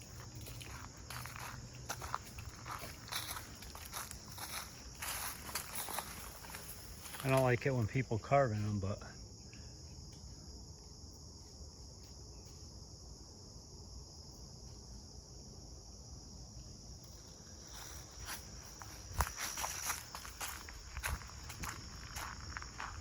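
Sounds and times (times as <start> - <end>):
footsteps on a trail: 0.0 - 7.6, 17.1 - 23.0
high-pitched insect chorus: 0.0 - 23.0.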